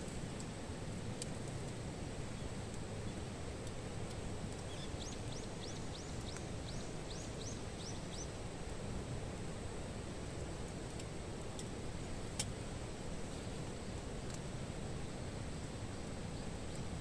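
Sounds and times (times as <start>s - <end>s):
steady outdoor hiss: 0.0s - 17.0s
small bird whistling song: 4.6s - 8.4s.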